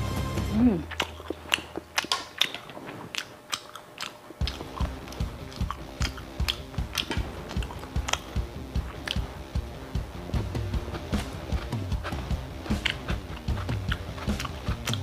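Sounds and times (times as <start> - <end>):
background music with steady beat: 0.0 - 1.0, 4.3 - 15.0
person chewing with wet smacks: 0.7 - 15.0.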